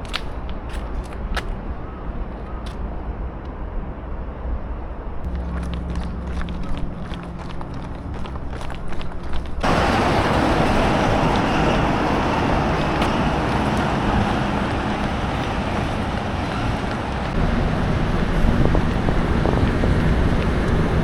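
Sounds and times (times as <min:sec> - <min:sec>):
engine rumble: 0:00.0 - 0:21.0
traffic noise: 0:00.0 - 0:21.0
wind noise: 0:00.0 - 0:21.0
running footsteps: 0:05.3 - 0:21.0.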